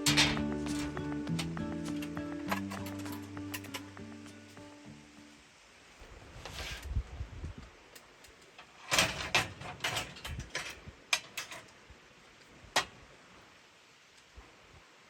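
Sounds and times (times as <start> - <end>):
sharp clicks and knocks: 0.0 - 4.4.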